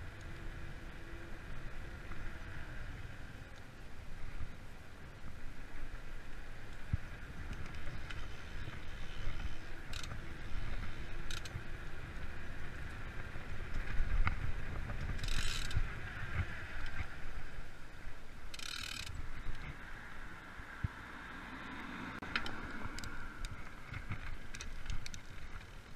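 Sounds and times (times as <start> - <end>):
bike freehub ratchet buzzing: 9.0 - 11.6, 15.2 - 15.8, 18.5 - 19.2.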